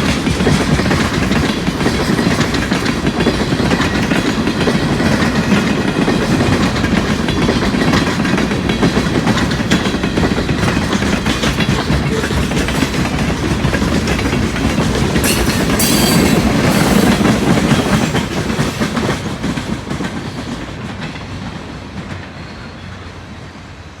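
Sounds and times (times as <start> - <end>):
train wheels clattering over rail joints: 0.0 - 22.3.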